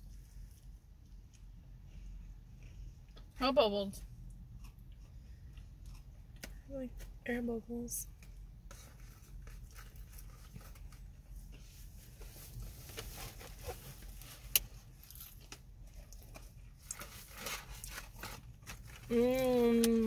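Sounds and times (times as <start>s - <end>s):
low steady hum: 0.0s - 20.0s
person chewing: 4.2s - 6.5s.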